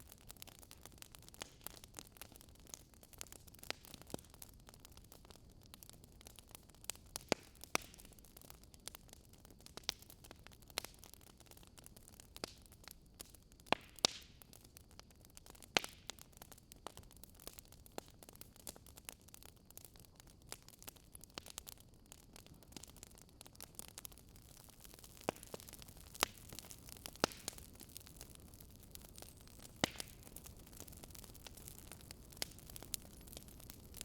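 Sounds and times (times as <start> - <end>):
soft steady hiss: 0.0 - 34.0
wood fire crackling: 0.0 - 34.0.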